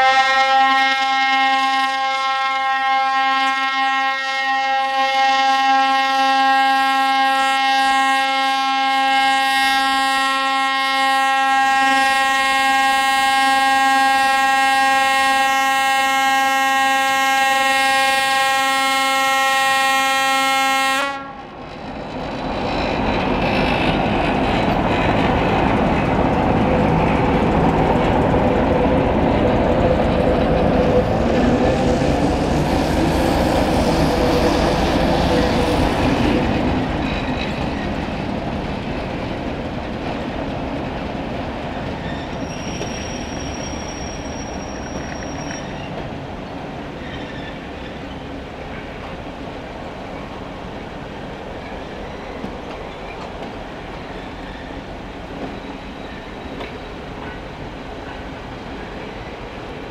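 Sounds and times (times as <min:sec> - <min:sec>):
freight train wheels rumbling and clacking: 0:21.2 - 0:59.9
high wheel squeal: 0:42.0 - 0:46.0, 0:46.9 - 0:48.3, 0:51.6 - 0:53.3, 0:54.0 - 0:54.9, 0:55.5 - 0:57.0.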